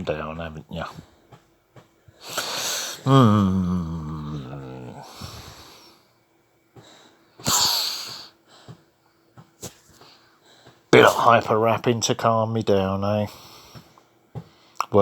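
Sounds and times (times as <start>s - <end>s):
loud sneeze-like snort: 7.4s - 8.3s.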